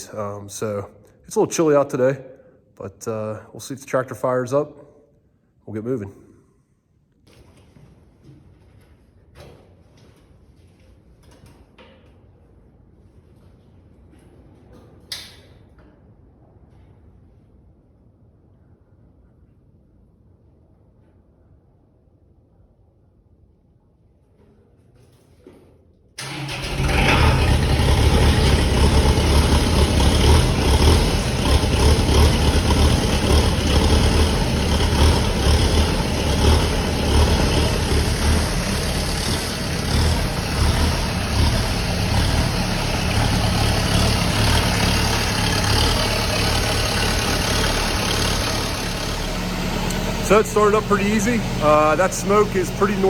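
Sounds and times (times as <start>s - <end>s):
diesel tractor engine starting: 0.0s - 2.2s, 26.2s - 53.0s.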